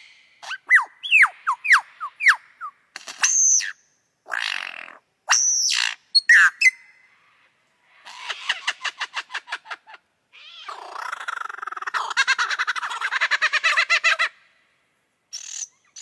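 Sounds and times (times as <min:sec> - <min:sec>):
lyrebird whistled calls: 0:00.0 - 0:06.9.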